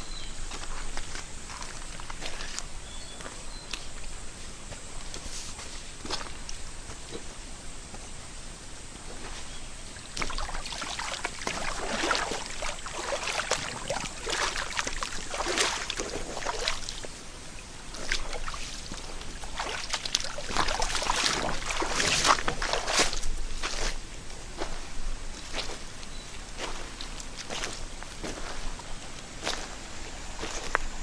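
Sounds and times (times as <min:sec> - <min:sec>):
stream running water: 0:05.9 - 0:31.0
water splashing from wading: 0:10.0 - 0:23.9.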